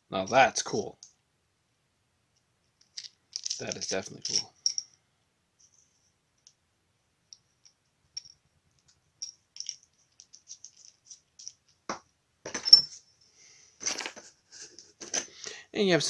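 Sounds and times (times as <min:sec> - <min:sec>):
small metal parts clicking: 0:02.8 - 0:04.9, 0:07.3 - 0:11.8
metal pieces clattering: 0:02.9 - 0:04.8, 0:09.2 - 0:11.7, 0:13.8 - 0:14.2.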